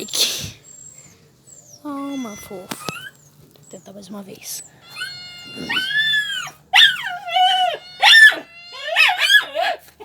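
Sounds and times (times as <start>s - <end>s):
dog whining and whimpering: 0.6s - 3.4s, 4.9s - 9.8s.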